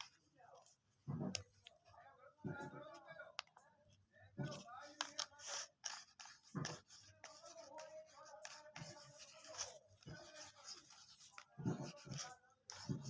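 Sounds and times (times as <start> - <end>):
taps clicks and scrapes on tablet: 0.0 - 1.8, 4.4 - 13.0.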